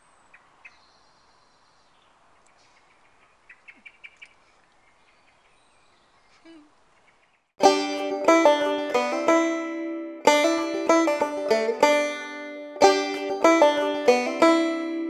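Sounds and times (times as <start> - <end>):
faint bird chirps: 0.0 - 7.5.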